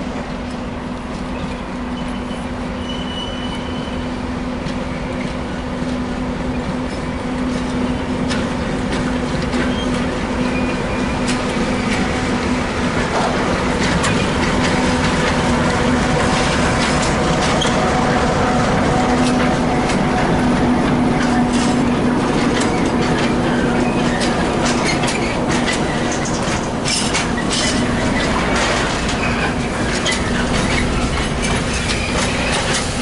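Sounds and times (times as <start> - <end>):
train engine hum: 0.0 - 33.0
wheel squeals: 1.3 - 4.2, 9.5 - 12.2, 16.0 - 19.5, 21.2 - 33.0
wheel clicks over rail joints: 6.9 - 33.0.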